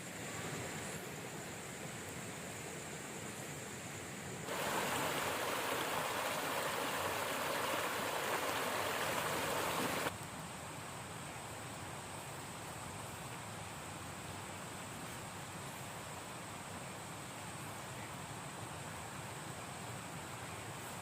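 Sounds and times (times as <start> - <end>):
high insect whine: 0.0 - 10.1
river water rushing: 4.5 - 10.1.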